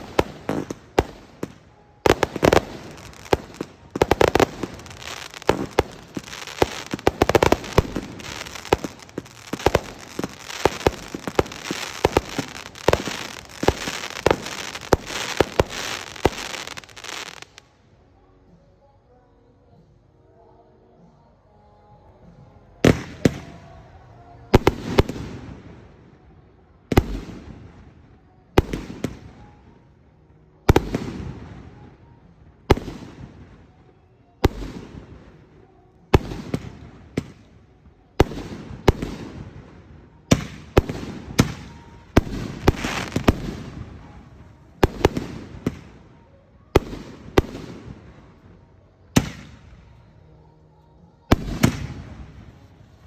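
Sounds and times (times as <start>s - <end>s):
fireworks bangs: 0.0s - 17.6s, 38.2s - 46.2s.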